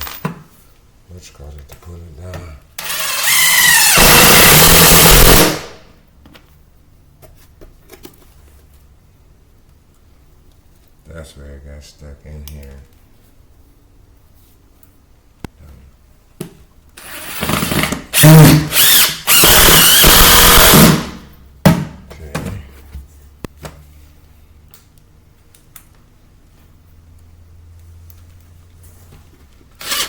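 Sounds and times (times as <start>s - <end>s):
power drill driving screw: 2.8s - 5.7s, 17.0s - 21.2s, 29.8s - 30.0s.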